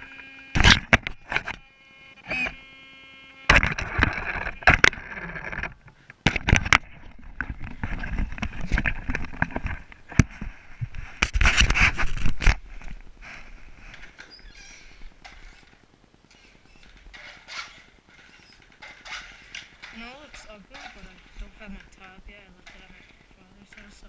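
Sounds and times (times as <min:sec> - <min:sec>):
rc truck motor running: 0:00.0 - 0:05.9, 0:13.9 - 0:24.0
sharp clicks and knocks: 0:00.5 - 0:01.6, 0:03.5 - 0:14.4, 0:15.1 - 0:24.0
tyres scraping and crunching: 0:03.5 - 0:24.0.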